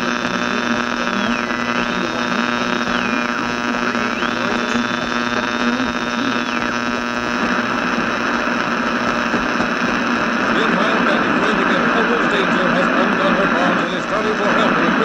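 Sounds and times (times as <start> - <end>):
radio reception hum and hiss: 0.0 - 15.0.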